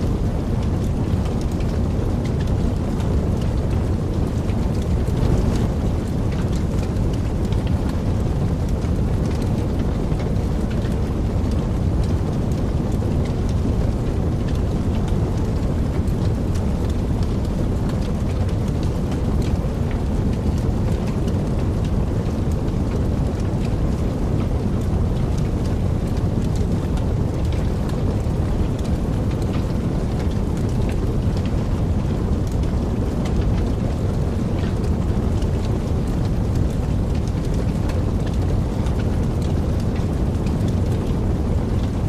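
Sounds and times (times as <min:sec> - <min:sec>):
fire crackling and popping: 0:00.0 - 0:42.0
rush of flames: 0:00.0 - 0:42.0.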